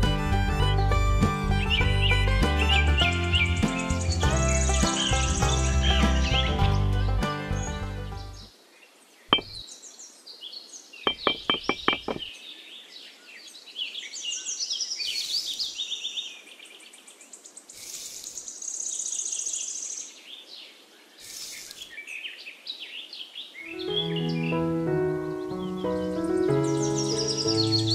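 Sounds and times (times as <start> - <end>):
birds chirping and trilling: 0.6 - 27.9
sharp taps: 9.3 - 9.6, 11.1 - 12.3.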